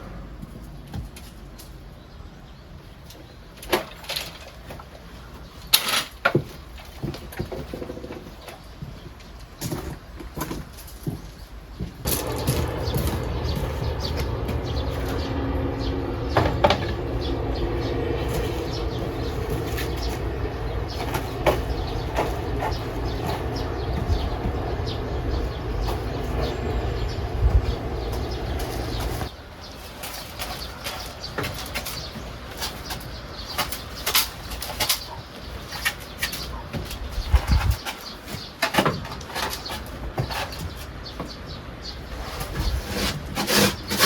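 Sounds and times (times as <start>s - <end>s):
steady low rumble: 12.0s - 29.4s
chickens clucking: 12.1s - 29.3s.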